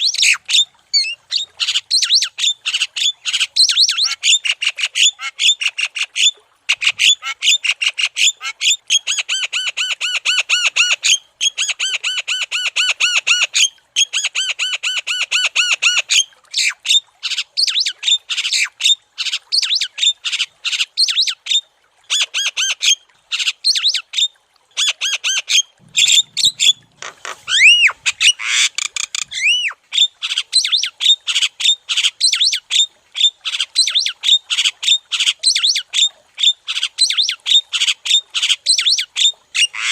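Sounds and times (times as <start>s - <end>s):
bird chattering song: 25.9s - 29.8s
bird gliding whistles: 26.0s - 26.9s, 27.5s - 29.8s.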